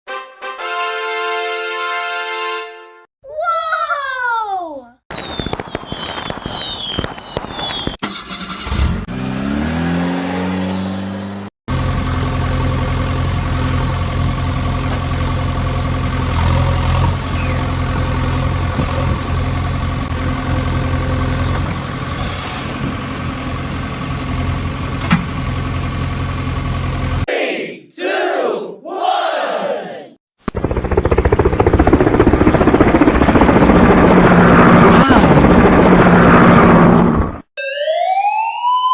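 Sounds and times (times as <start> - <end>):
vehicle engine starting and revving: 8.0 - 14.4.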